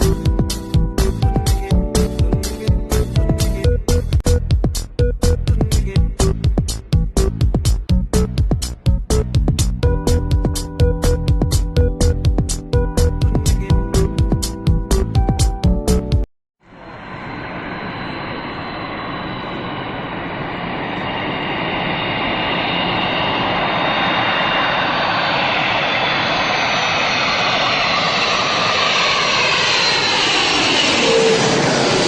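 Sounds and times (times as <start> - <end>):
airplane engines roaring overhead: 0.0 - 4.2, 16.6 - 32.0.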